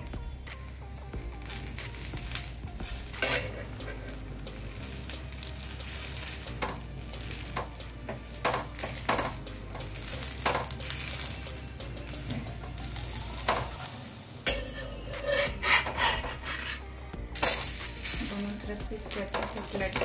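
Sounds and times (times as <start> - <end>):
crepe sizzling on a griddle: 0.0 - 20.0
spatula scraping pan: 1.5 - 4.3, 14.5 - 18.4.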